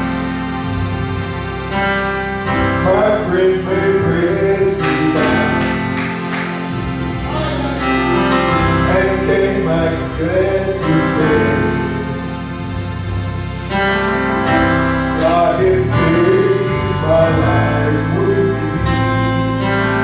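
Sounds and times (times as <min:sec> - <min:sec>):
keyboard and band accompaniment: 0:00.0 - 0:20.0
person singing gospel: 0:02.5 - 0:12.5, 0:13.7 - 0:19.8
sharp percussion strikes: 0:04.8 - 0:07.7.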